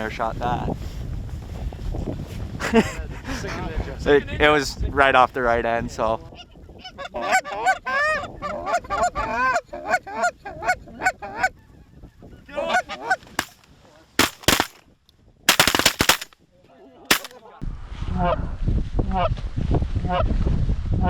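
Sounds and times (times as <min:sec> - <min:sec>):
shotgun blasts: 0:13.4 - 0:13.6, 0:14.2 - 0:14.8, 0:15.5 - 0:16.4, 0:17.1 - 0:17.3.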